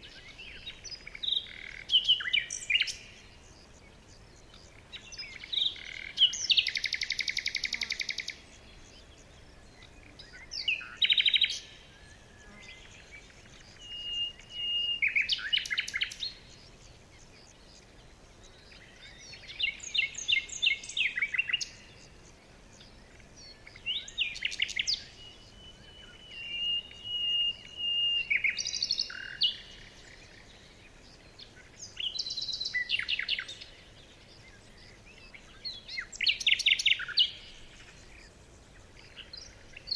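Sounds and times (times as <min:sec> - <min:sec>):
songbirds trilling and chirping: 0:00.0 - 0:39.9
thin steady bird whistle: 0:09.8 - 0:16.8, 0:22.8 - 0:30.7.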